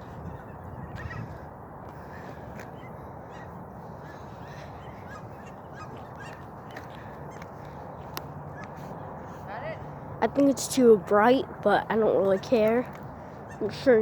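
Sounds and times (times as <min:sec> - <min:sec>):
geese honking: 0:02.8 - 0:07.5.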